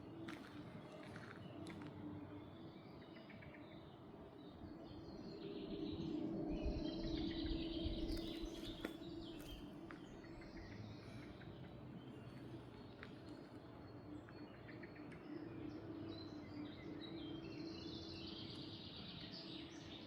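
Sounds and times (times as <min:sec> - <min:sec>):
songbirds chirping and singing: 0:00.0 - 0:20.0.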